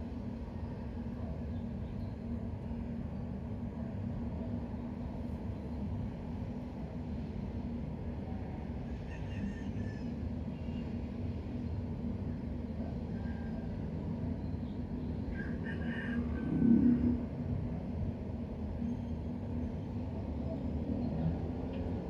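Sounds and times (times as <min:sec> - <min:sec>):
low rumbling background noise: 0:00.0 - 0:22.0.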